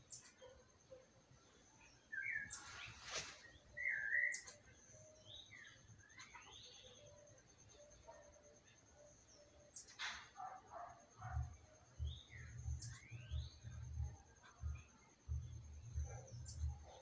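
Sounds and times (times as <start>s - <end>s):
birds warbled chirps: 0.0s - 17.0s
bird whistled glides: 2.2s - 4.6s.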